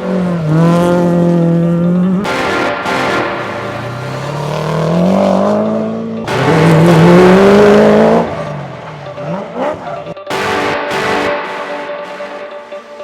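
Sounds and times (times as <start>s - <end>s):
rally car engine accelerating: 0.0s - 13.0s.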